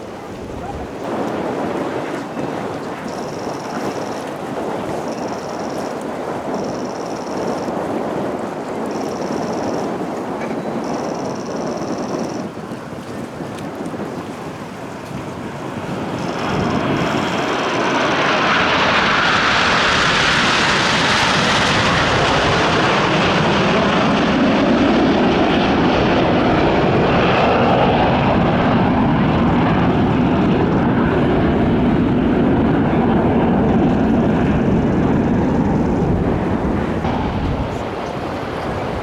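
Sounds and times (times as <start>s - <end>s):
jet aircraft flying past: 14.9s - 39.0s.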